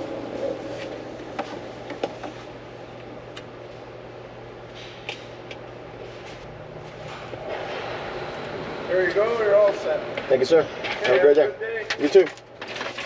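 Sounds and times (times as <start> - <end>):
low hum in truck cab: 0.0 - 13.0
rustling of things being handled: 9.2 - 13.0.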